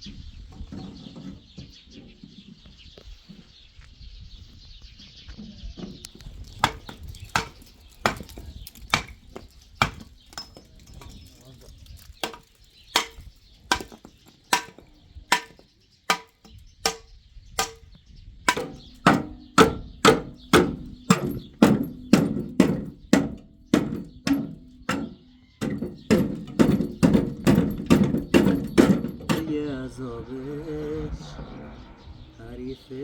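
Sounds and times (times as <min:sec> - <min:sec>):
tool striking hard surface: 0:18.5 - 0:30.0.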